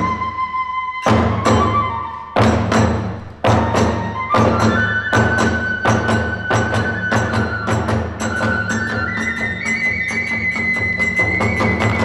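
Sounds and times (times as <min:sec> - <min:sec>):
bamboo flute long high notes: 0:00.0 - 0:12.0
steady drumming: 0:01.0 - 0:12.0.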